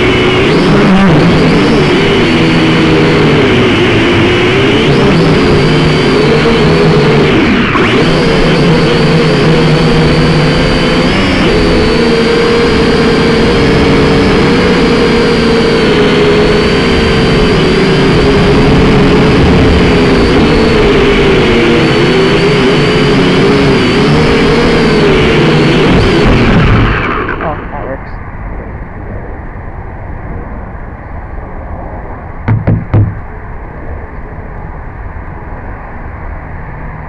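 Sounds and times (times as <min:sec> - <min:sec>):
drone motors whining: 0:00.0 - 0:28.0, 0:32.5 - 0:33.4
wind rumble on microphone: 0:00.0 - 0:37.0.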